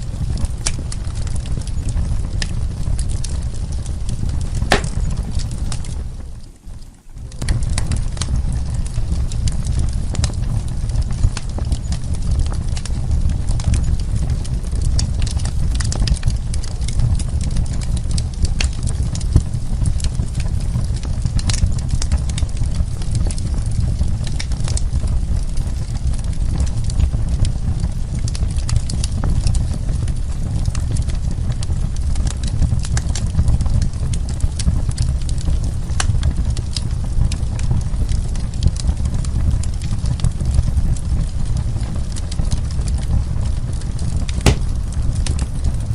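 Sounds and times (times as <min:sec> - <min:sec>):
fire crackling and popping: 0:00.0 - 0:45.9
low rumble of flames: 0:00.0 - 0:45.9.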